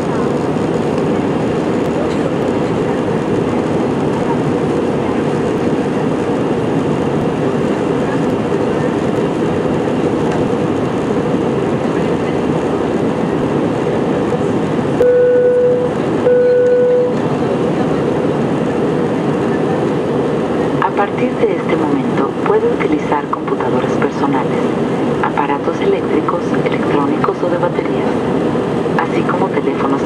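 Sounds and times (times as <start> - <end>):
airliner cabin noise: 0.0 - 30.0
steady electronic tones: 15.0 - 17.2.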